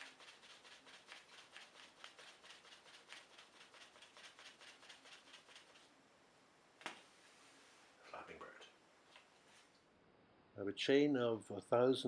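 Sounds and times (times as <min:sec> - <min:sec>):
paper wings rustling: 0:00.0 - 0:05.9.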